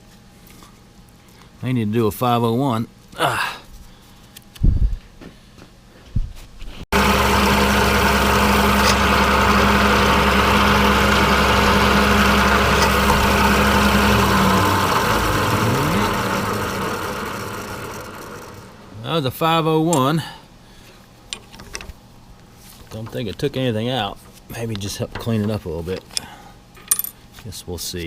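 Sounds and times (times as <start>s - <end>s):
machine tool spindle humming: 7.0s - 19.0s.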